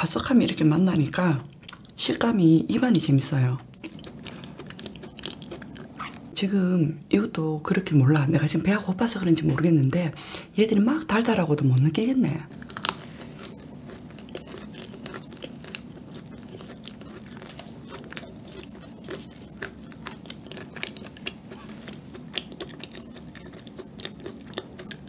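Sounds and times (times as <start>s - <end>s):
chewing crunchy cookie: 0.2s - 6.4s, 11.2s - 25.0s.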